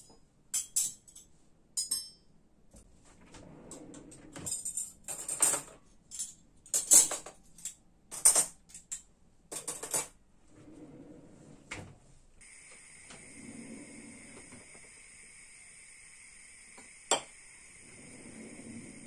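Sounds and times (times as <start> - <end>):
dishes and cutlery clinking: 0.0 - 2.3, 4.4 - 10.2.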